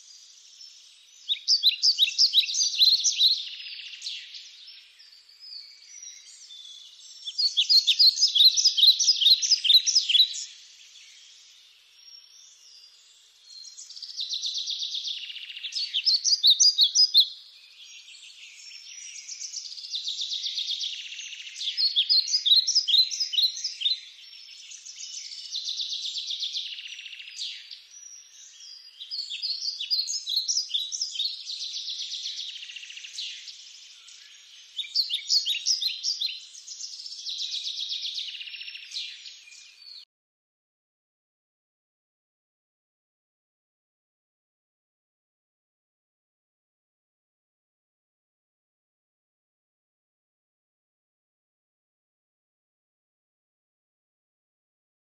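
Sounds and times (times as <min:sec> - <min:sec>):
songbirds chirping: 0:00.0 - 0:40.1.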